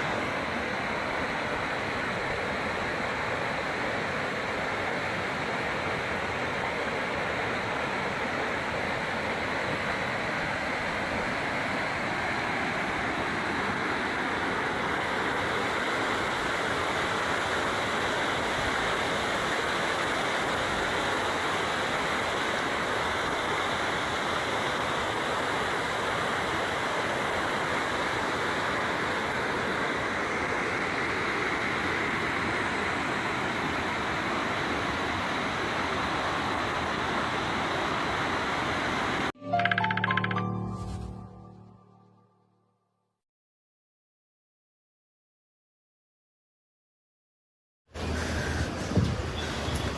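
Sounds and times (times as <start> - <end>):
music: 39.4 - 42.7.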